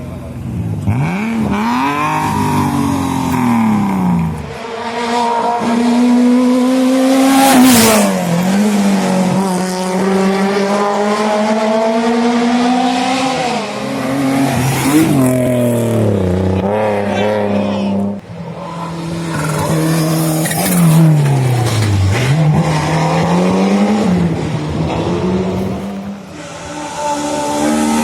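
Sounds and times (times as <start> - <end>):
racing car engine shifting gears: 18.2 - 26.4.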